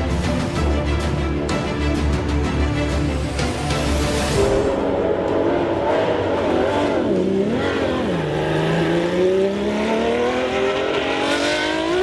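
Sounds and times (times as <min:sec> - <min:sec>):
racing car engine revving: 0:04.6 - 0:12.0.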